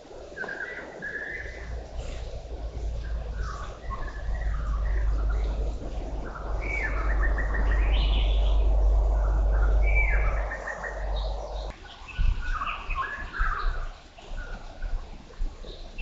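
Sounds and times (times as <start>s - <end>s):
birds chirping and singing: 0.4s - 13.8s
low rumble: 1.4s - 11.7s.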